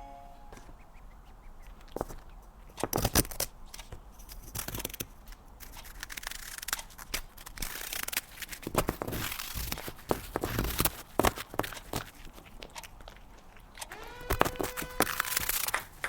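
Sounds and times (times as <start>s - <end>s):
cat scratching crinkly packaging: 2.8s - 16.0s.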